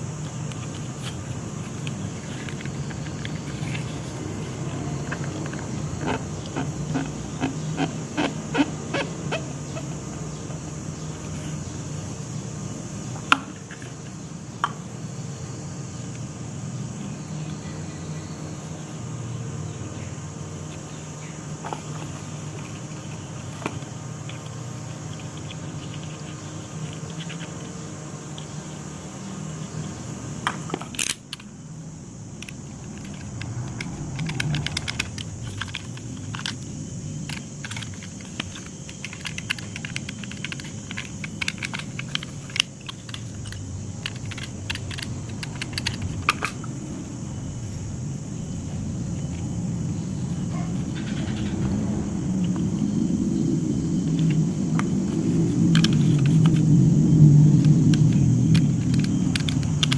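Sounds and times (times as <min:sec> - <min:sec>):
steady low rumble: 0:31.5 - 0:59.9
small hard parts clinking: 0:32.2 - 0:46.8, 0:54.0 - 0:59.9.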